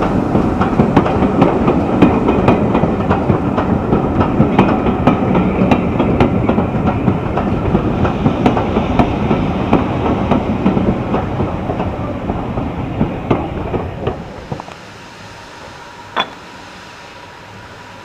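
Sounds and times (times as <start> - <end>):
train wheel clicks: 0.0 - 12.4
train coaches rumbling past: 0.0 - 18.0.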